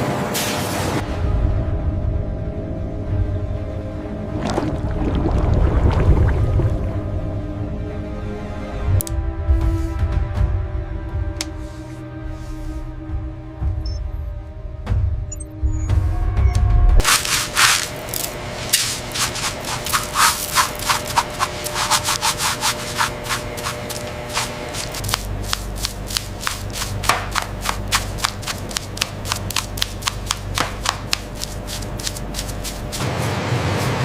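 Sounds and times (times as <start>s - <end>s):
hand rubbing strokes: 17.0s - 29.7s, 31.4s - 34.0s.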